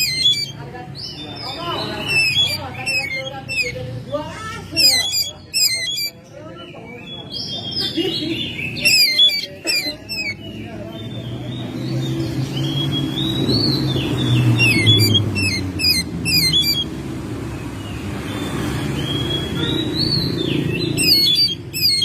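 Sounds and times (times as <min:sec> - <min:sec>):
magpie-robin singing: 0:00.0 - 0:22.0.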